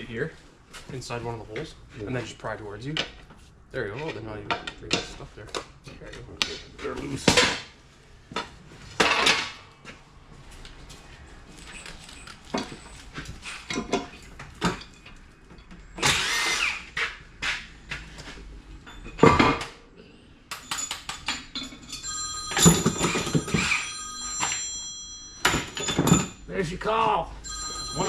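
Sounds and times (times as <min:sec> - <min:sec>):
metal parts and tools clanking: 0:11.5 - 0:16.6, 0:18.2 - 0:19.9, 0:20.5 - 0:26.5
phone ringtone: 0:22.0 - 0:26.5, 0:27.4 - 0:28.0.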